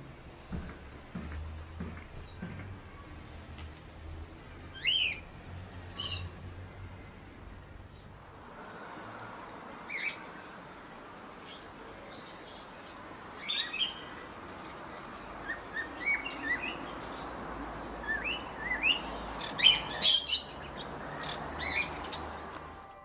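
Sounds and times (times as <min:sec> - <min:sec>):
steady outdoor hiss: 0:00.0 - 0:23.0
small birds chirping: 0:09.7 - 0:22.7.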